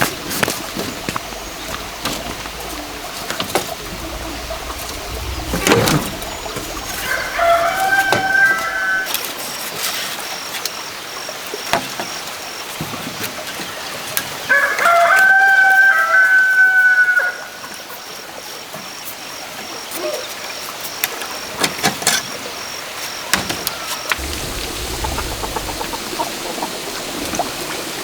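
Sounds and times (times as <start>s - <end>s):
rooster crowing: 0.6s - 9.1s, 14.5s - 17.6s.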